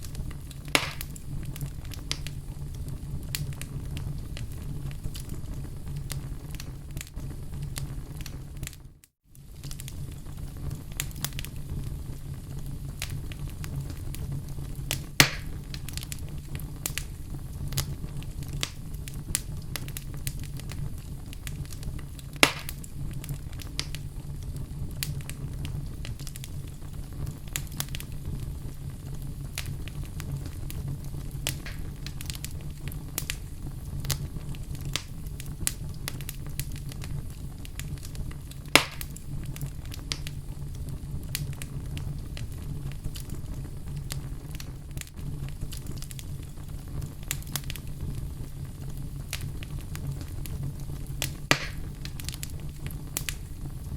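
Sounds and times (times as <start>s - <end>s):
fire crackling: 0.0s - 53.9s
fire rumbling: 0.0s - 53.9s
wood popping: 0.6s - 2.4s, 14.9s - 16.1s, 22.2s - 24.0s, 31.4s - 33.4s, 38.7s - 39.2s, 51.2s - 52.4s.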